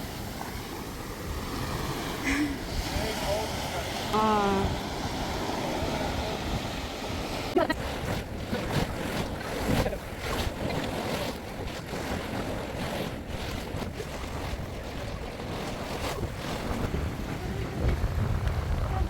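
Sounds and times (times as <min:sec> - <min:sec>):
surf on a beach: 0:00.0 - 0:19.0
wind gusting across microphone: 0:00.0 - 0:19.0.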